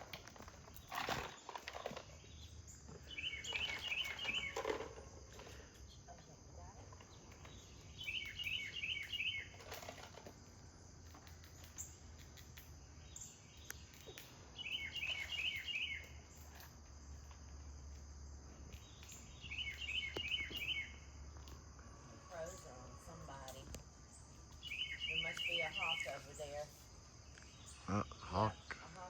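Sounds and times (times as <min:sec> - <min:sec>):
insect drone: 0:00.0 - 0:29.0
bird calling: 0:02.2 - 0:04.8, 0:07.3 - 0:09.9, 0:13.1 - 0:16.2, 0:18.8 - 0:21.0, 0:22.3 - 0:26.7.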